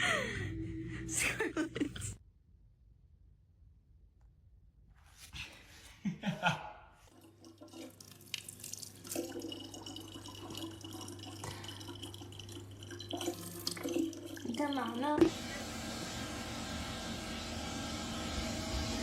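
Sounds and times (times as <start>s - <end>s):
low hum: 0.0s - 4.9s, 15.2s - 19.0s
water running and dripping: 7.1s - 15.4s.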